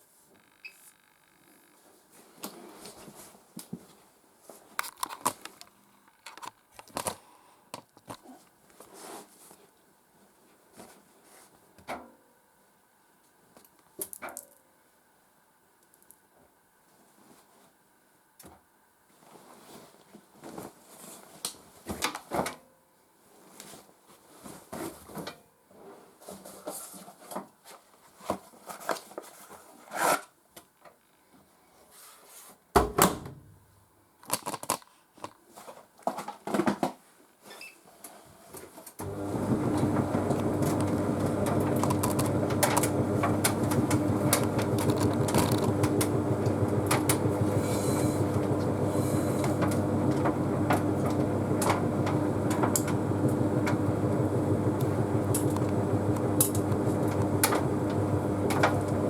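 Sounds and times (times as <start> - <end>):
laundry rustling: 39.0 - 59.0
tumble dryer humming: 39.0 - 59.0.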